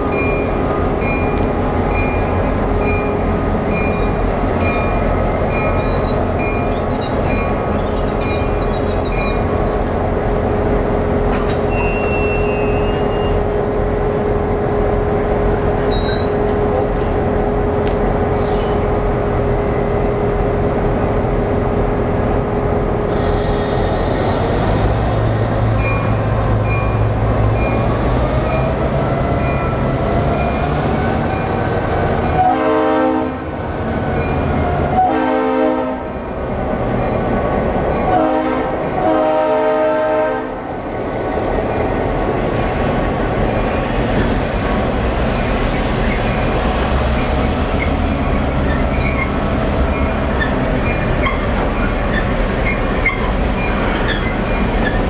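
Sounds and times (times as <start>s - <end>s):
diesel locomotive passing: 0.0s - 55.0s
train air horn: 32.4s - 33.5s, 35.0s - 36.1s, 38.1s - 40.6s.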